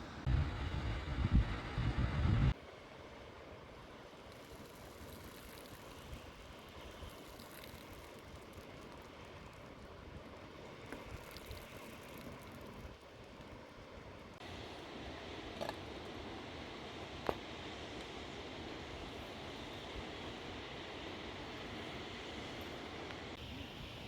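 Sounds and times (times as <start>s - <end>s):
outdoor ambience hiss: 0.0s - 24.0s
faint ticks: 4.2s - 14.4s.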